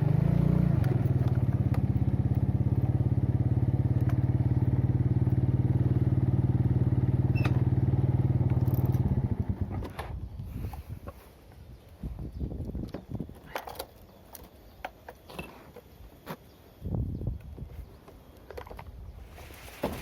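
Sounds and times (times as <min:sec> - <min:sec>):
knocks and crackles: 0:18.4 - 0:20.0.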